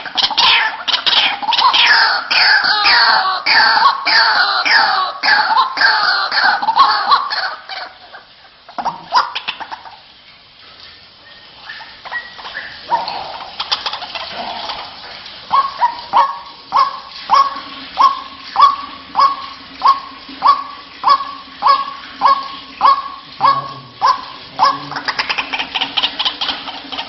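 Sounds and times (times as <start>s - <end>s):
bird croaking and chattering calls: 11.7s - 14.9s, 15.5s - 27.0s.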